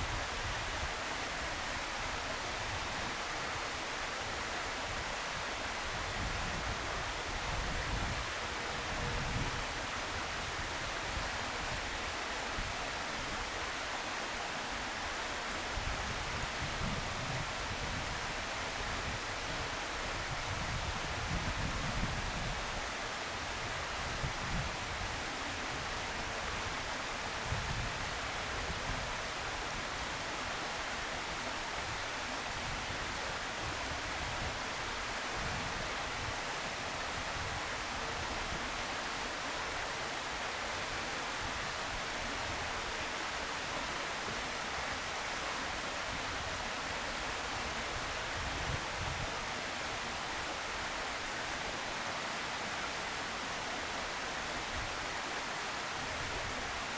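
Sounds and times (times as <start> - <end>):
steady outdoor hiss: 0.0 - 56.9
wind rumble on microphone: 4.1 - 13.2, 15.7 - 30.2, 47.5 - 50.6.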